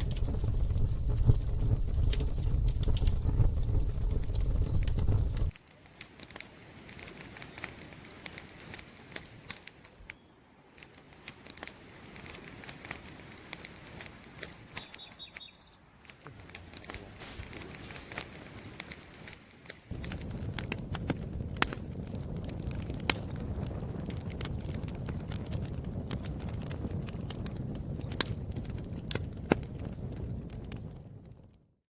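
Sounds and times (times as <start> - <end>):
low rumble: 0.0 - 5.5, 19.9 - 27.3
campfire crackling: 0.0 - 15.2, 15.8 - 31.8
faint high chirps: 13.9 - 15.8.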